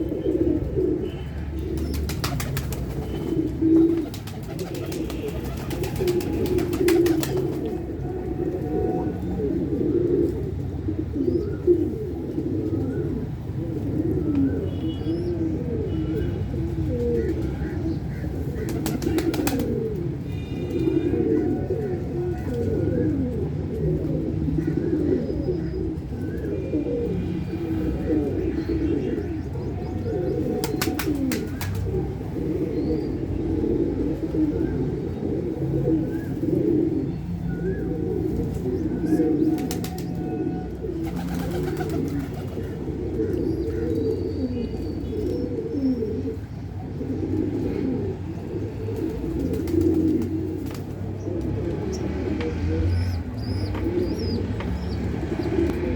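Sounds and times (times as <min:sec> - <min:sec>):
pigeons cooing: 0:00.0 - 0:55.9
small birds chirping: 0:51.9 - 0:55.9.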